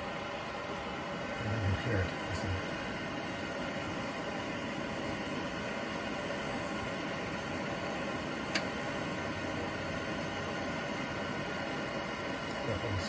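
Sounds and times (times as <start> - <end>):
heater blowing: 0.0 - 13.0
ignition click: 8.5 - 8.7.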